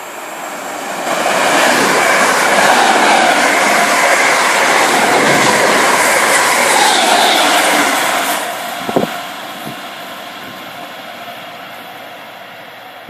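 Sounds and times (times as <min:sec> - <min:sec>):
train passing: 0:00.0 - 0:13.0.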